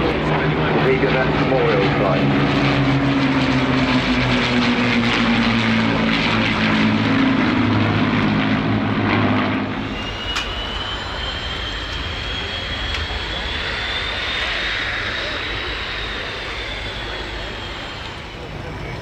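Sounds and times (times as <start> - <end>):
piston aircraft engines droning: 0.0 - 19.0
rushing noise with rising whine: 9.6 - 19.0.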